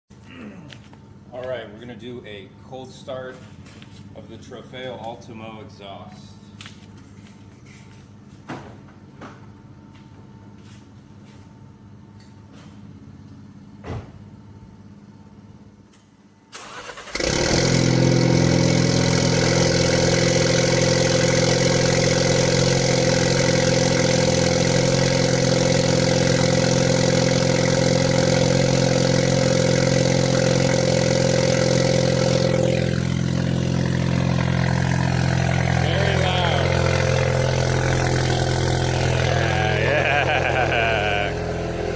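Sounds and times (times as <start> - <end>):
car engine cranking: 16.5 - 41.9
car engine high idle: 16.6 - 41.9.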